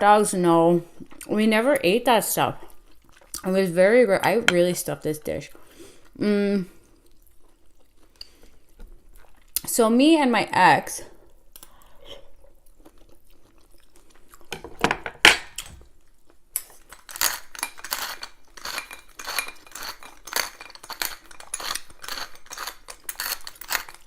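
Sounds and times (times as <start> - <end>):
cutlery clinking and scraping on plate: 16.9 - 24.0.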